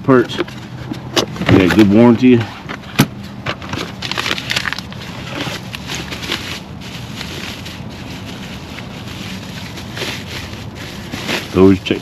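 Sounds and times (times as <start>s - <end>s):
cardboard boxes crackling and scraping: 0.1s - 12.0s.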